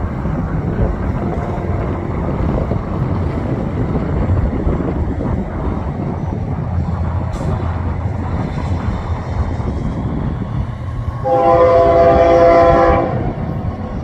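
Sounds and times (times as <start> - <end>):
train low rumble: 0.0 - 14.0
locomotive air horn blast: 11.1 - 13.4.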